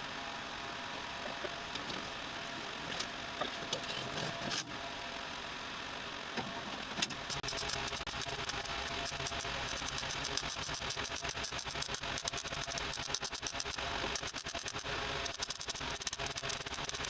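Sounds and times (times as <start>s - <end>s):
welding arc crackling: 7.3s - 17.0s.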